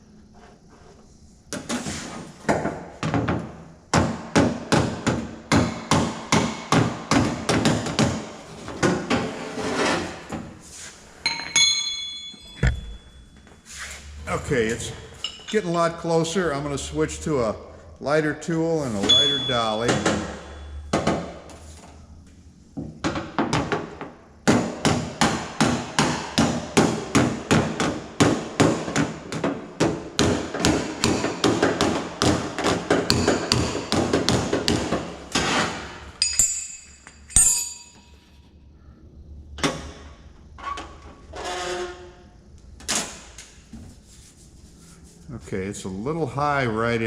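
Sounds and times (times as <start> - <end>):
metallic clinks: 11.2 - 13.7, 36.2 - 38.4
loud knock: 12.6 - 13.2.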